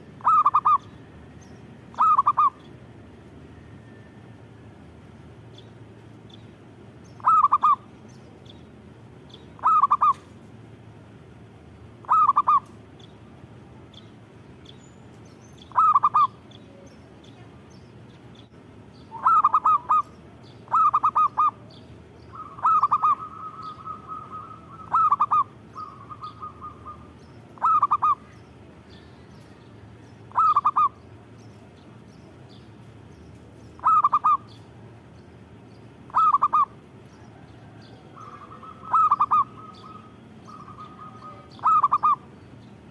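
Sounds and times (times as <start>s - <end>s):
dove cooing: 0.0s - 0.9s, 1.9s - 2.6s, 7.2s - 7.9s, 9.6s - 10.3s, 12.0s - 12.8s, 15.6s - 16.5s, 19.1s - 28.4s, 30.3s - 31.0s, 33.8s - 34.6s, 36.1s - 42.4s.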